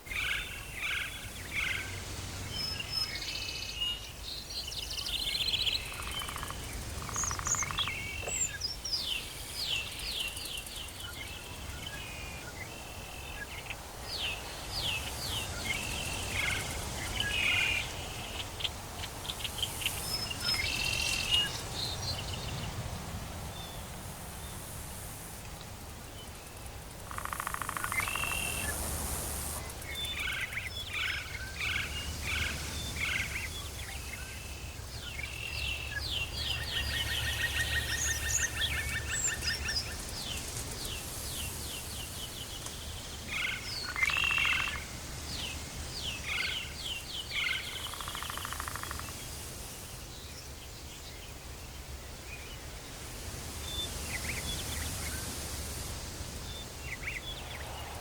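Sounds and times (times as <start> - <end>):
birds chirping and trilling: 0.0 - 22.8, 27.1 - 49.3.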